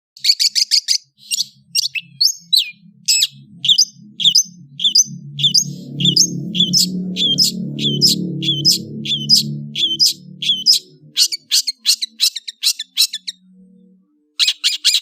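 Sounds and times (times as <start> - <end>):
shrike singing harsh notes: 1.4 - 11.8.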